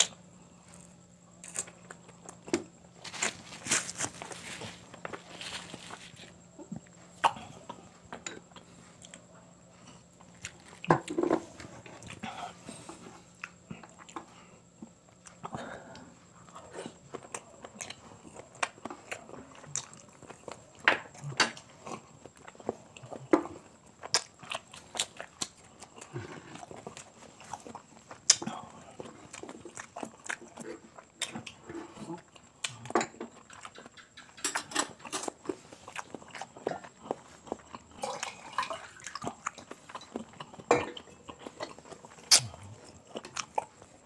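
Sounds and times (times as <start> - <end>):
person chewing and biting: 0.0 - 7.8, 39.0 - 44.0
wet mouth clicks and smacks: 42.3 - 42.6.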